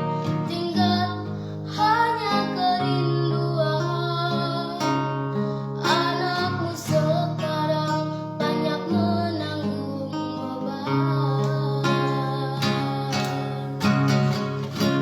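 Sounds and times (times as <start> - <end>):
acoustic guitar strumming: 0.0 - 15.0
person singing: 5.8 - 15.0.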